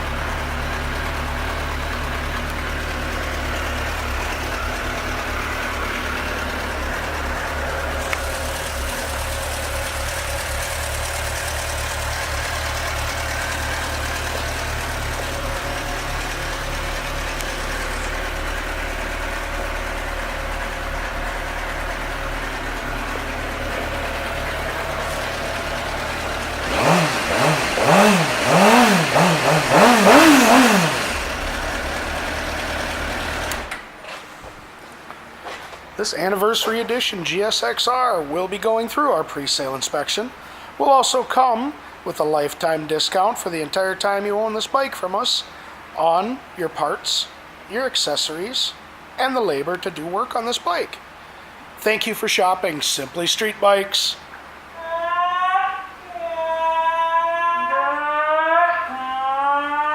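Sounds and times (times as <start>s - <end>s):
motorcycle engine idling and revving: 0.0s - 34.0s.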